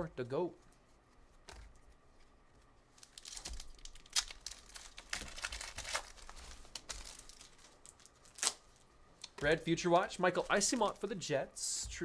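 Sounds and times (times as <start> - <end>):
foil pack tearing and crinkling: 2.9 - 8.8.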